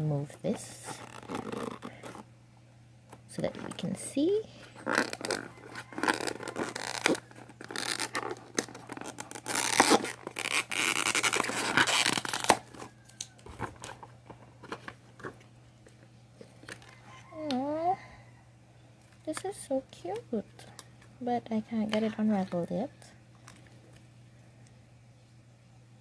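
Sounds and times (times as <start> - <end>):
packaging rustling and tearing: 0.9 - 2.3, 4.7 - 15.4.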